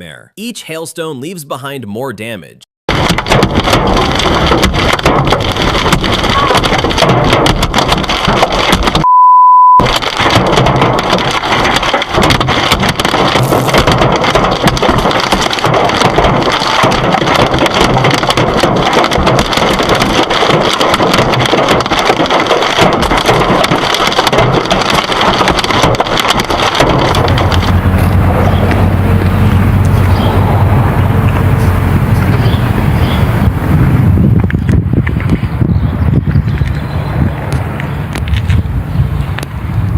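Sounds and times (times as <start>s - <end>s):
hailstones pelting down: 2.9s - 9.0s, 9.8s - 35.4s
censor bleep: 9.0s - 9.8s
low steady hum: 27.1s - 33.7s.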